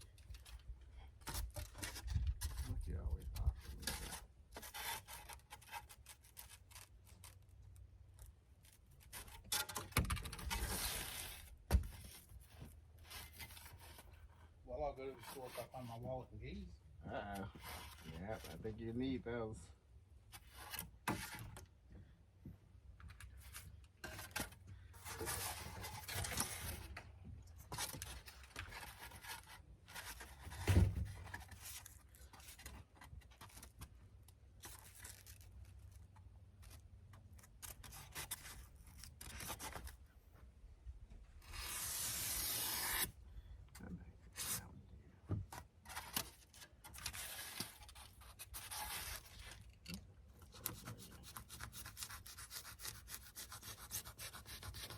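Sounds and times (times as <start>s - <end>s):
foam board rubbing and scraping: 3.5s - 7.4s, 9.0s - 14.5s, 15.1s - 16.2s, 17.5s - 18.6s, 23.4s - 27.0s, 27.6s - 33.6s, 41.4s - 43.2s, 44.3s - 44.7s, 45.8s - 49.8s, 50.5s - 54.9s.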